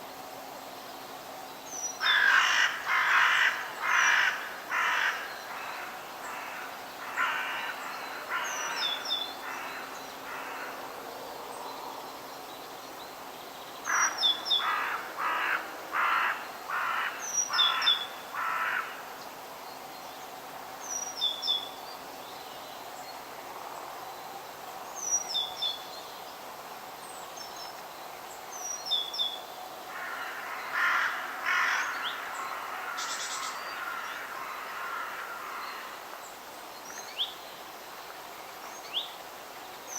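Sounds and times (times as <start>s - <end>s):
steady outdoor hiss: 0.0s - 39.9s
bird cawing: 2.0s - 10.7s, 13.9s - 19.0s, 29.9s - 36.0s.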